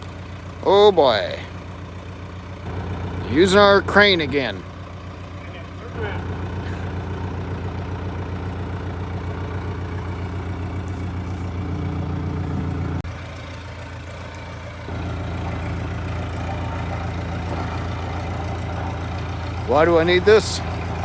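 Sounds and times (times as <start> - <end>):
heavy vehicle engine idling: 0.0 - 21.0.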